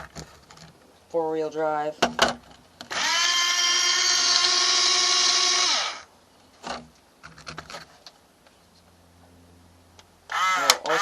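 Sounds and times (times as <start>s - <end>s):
toy bulldozer motor whining: 2.9s - 6.1s, 10.3s - 11.0s.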